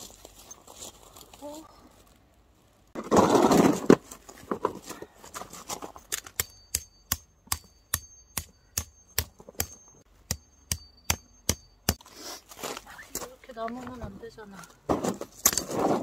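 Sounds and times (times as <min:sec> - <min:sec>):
rustling: 0:00.0 - 0:06.2, 0:12.0 - 0:16.0
hammer striking metal tent stake: 0:06.1 - 0:12.1.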